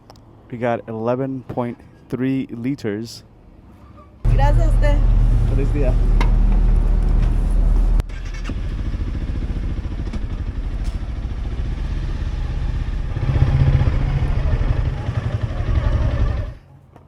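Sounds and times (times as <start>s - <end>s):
motorcycle engine running: 4.3s - 16.6s.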